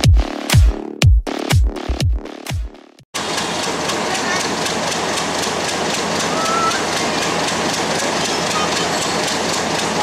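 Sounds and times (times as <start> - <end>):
diesel locomotive hauling train: 3.2 - 10.0
regular clicking of wheels: 3.6 - 10.0.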